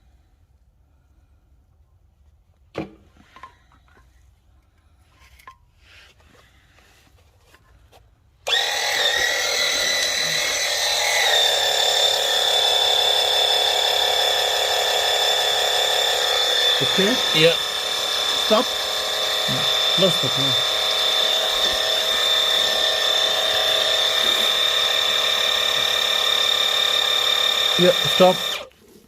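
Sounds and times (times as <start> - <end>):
oil pump whining: 8.4 - 28.8.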